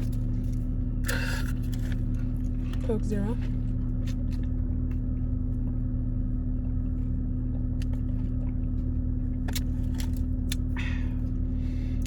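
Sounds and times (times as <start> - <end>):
steady low hum: 0.0 - 12.0
chewing and biting clicks: 6.6 - 10.8.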